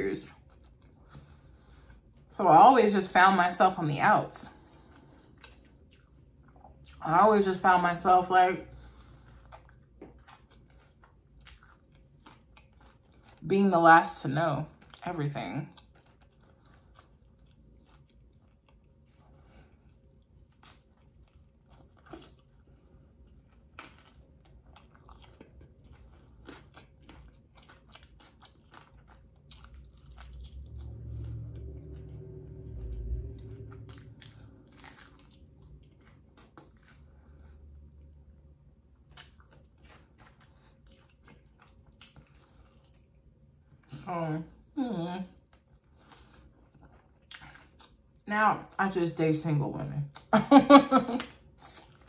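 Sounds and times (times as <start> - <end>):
wet crunching while eating: 8.8 - 13.5, 14.6 - 43.8, 45.4 - 48.2
low hum: 28.8 - 46.7.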